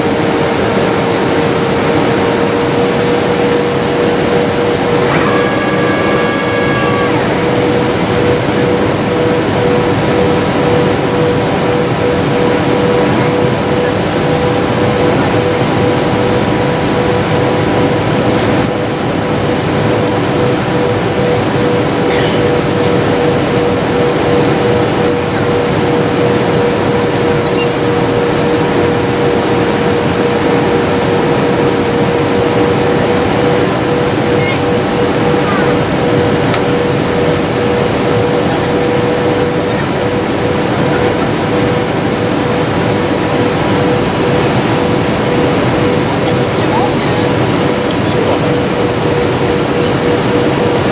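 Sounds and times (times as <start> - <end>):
jet engines and airflow rushing: 0.0 - 50.9
steady hum: 0.0 - 50.9
steady tone: 3.9 - 15.4.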